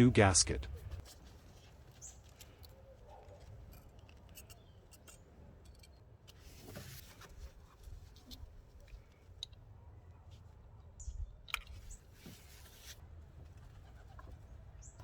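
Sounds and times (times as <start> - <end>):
small metal parts clinking: 3.4 - 6.4.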